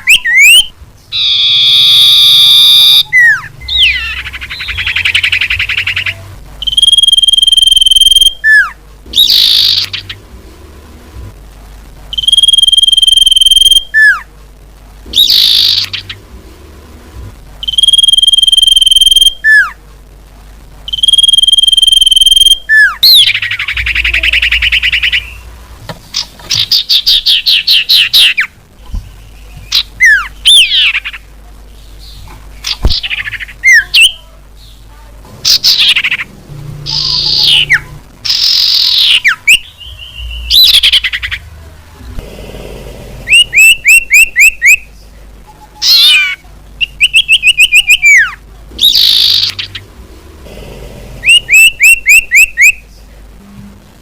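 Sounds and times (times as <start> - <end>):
high bird whistles: 0.0 - 10.1, 51.2 - 52.8
sweeping bird chirps: 0.0 - 10.2, 12.1 - 14.2, 15.2 - 16.2, 20.9 - 25.5, 35.4 - 41.5
rapid rattling bird trills: 35.4 - 41.4.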